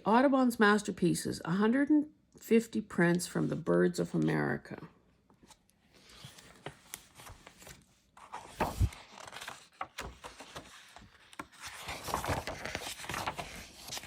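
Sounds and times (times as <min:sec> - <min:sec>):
pages rustling and turning: 0:05.4 - 0:14.0.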